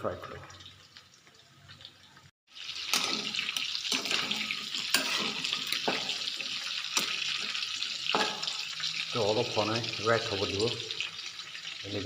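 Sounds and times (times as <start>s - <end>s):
chicken sizzling in hot oil: 0.0s - 12.0s
spatula scraping a pan: 2.7s - 9.0s.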